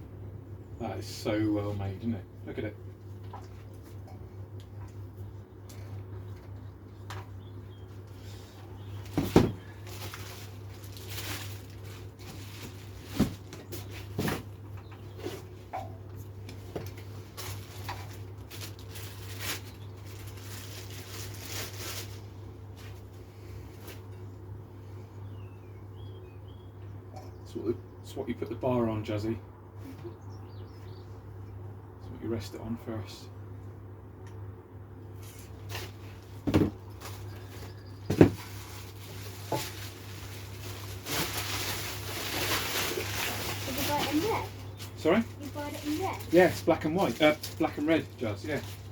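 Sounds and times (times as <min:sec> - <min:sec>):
steady low hum: 0:00.0 - 0:48.9
packaging rustling: 0:09.0 - 0:14.1, 0:17.2 - 0:23.0, 0:35.3 - 0:48.9.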